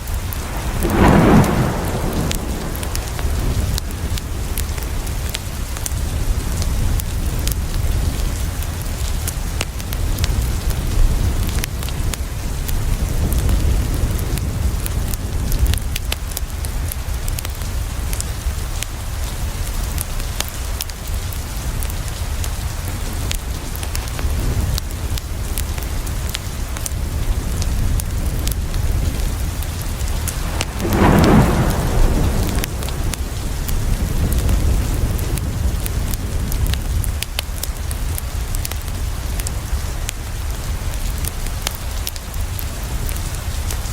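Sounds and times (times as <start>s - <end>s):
low rumble: 0.0s - 4.8s, 29.4s - 35.0s
wood fire crackling: 0.0s - 14.3s, 22.9s - 43.8s
rain on a window: 0.0s - 43.9s.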